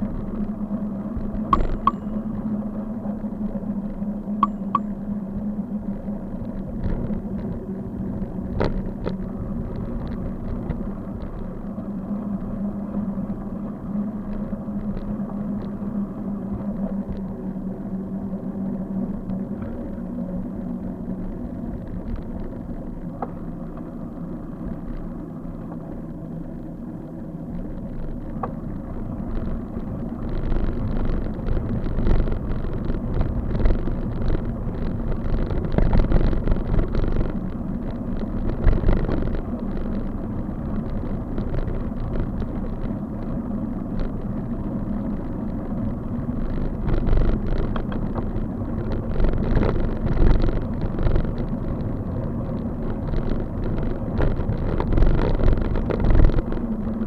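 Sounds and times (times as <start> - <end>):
bike road rumble: 0.0 - 57.0
bike knocks and rattles: 1.4 - 2.2
wind on microphone: 27.6 - 57.0.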